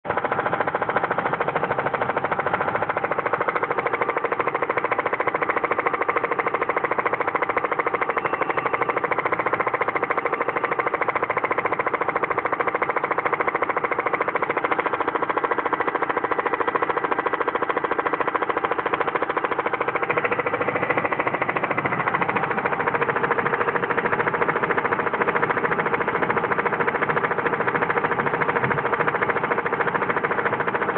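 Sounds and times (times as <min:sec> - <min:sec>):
car engine idling with tapping: 0:00.0 - 0:30.9.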